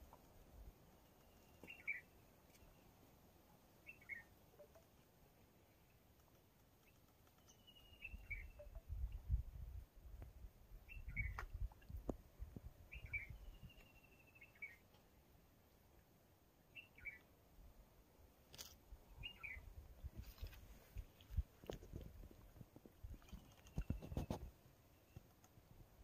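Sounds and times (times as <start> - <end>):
bird whistle and chirps: 1.3 - 2.1, 3.9 - 4.7, 7.4 - 8.9, 10.9 - 11.5, 12.9 - 14.8, 16.8 - 17.2, 19.2 - 19.6.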